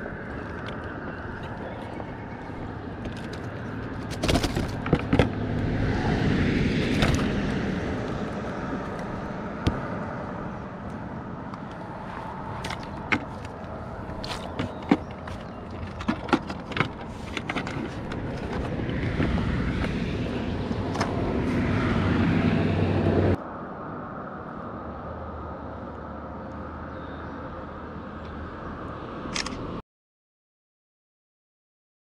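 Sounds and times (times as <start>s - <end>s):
sharp knocks and clicks: 12.6s - 20.0s.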